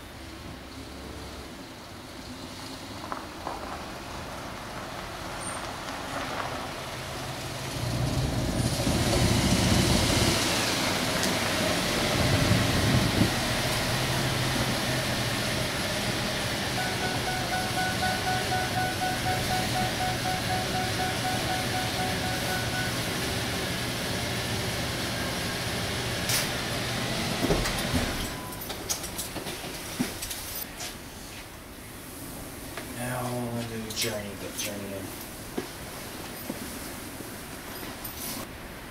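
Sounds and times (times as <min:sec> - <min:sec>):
vehicle engine running: 0:12.2 - 0:27.1
steady high tone: 0:16.8 - 0:23.7.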